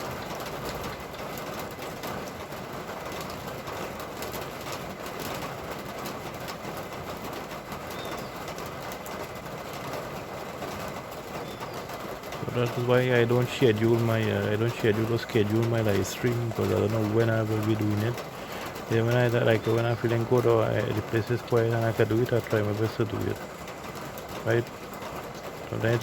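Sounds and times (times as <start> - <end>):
rain hissing on a street: 0.0 - 26.0
faint bird chirps: 7.9 - 8.5, 11.4 - 11.9.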